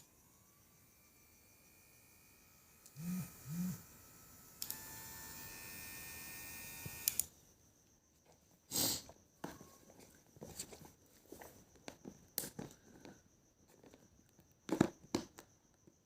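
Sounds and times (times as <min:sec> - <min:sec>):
small electric motor buzzing: 0:00.0 - 0:07.3.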